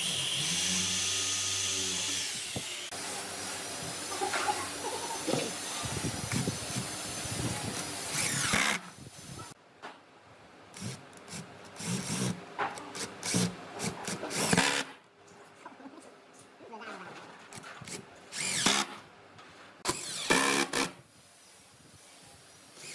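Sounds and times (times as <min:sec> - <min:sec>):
power tool whining: 0:00.0 - 0:08.8.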